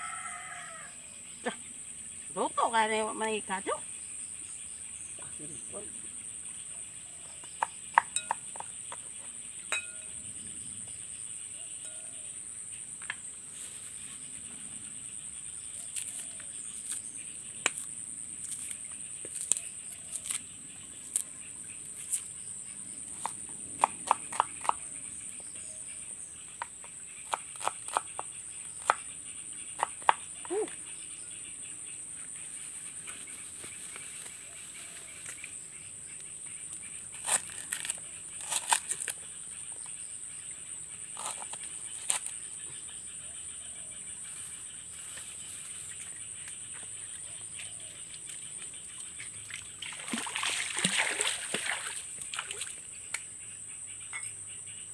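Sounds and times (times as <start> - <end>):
cleaver chopping: 23.2 - 24.8, 27.2 - 29.0.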